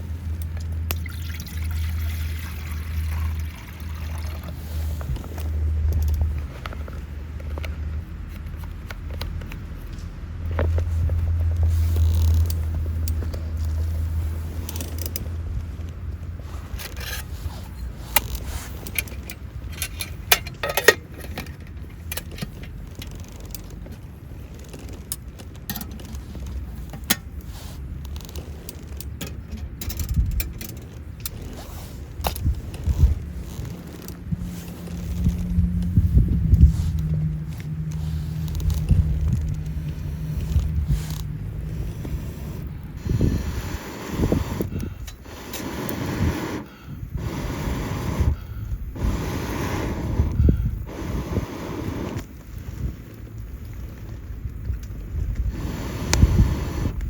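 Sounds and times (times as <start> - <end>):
objects clicking and rattling: 14.6 - 36.0
low rumble: 31.2 - 46.3.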